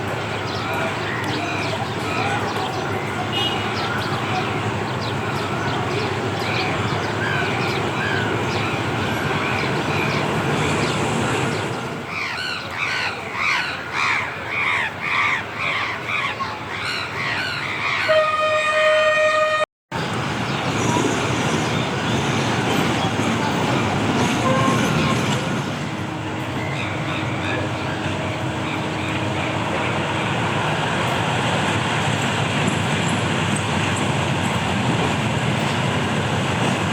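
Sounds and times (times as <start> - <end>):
train horn blast: 18.1 - 19.7, 24.4 - 25.5.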